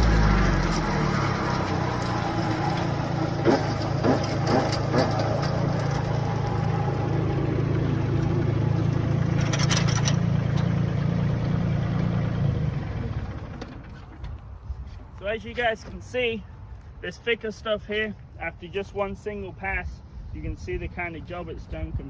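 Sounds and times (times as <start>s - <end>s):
tractor and mower drone: 0.0s - 14.4s.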